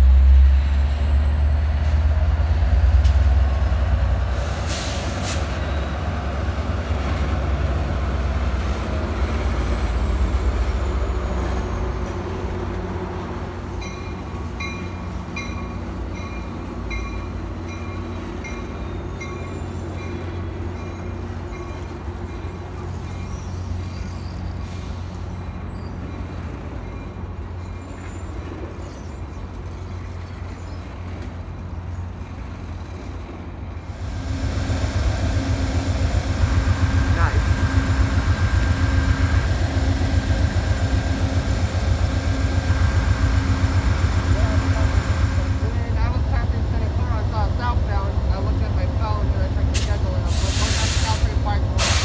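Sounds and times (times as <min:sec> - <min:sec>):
train engine rumble: 0:00.0 - 0:52.0
train wheel noise: 0:00.0 - 0:52.0
high wheel squeal: 0:18.6 - 0:31.2.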